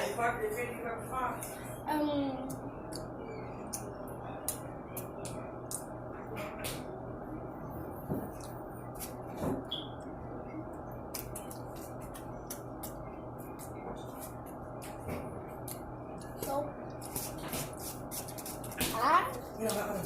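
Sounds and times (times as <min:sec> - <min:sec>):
chewing clicks and smacks: 0:03.7 - 0:06.0.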